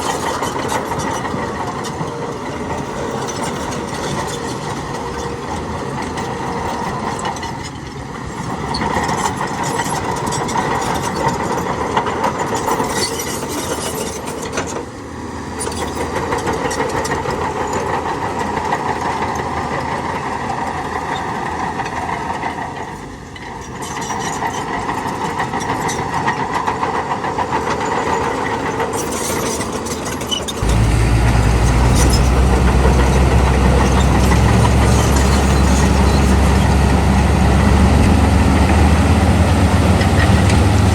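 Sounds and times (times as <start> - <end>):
heavy machinery diesel engines: 0.0 - 40.9
loud deep engine sound: 30.6 - 40.9.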